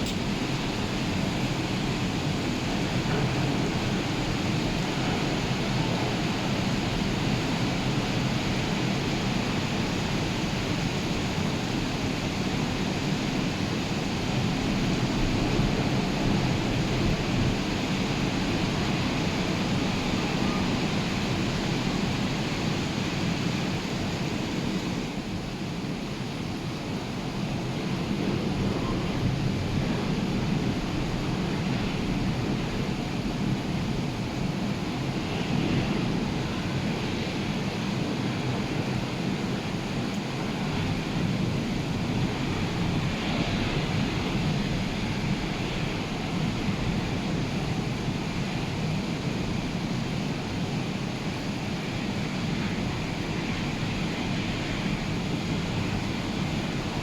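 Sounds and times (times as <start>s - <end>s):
breaking waves roaring: 27.3s - 57.0s.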